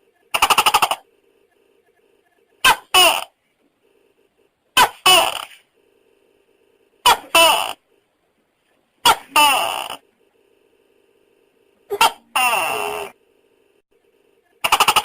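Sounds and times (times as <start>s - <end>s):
gecko calling: 0.2s - 4.1s, 11.9s - 13.2s.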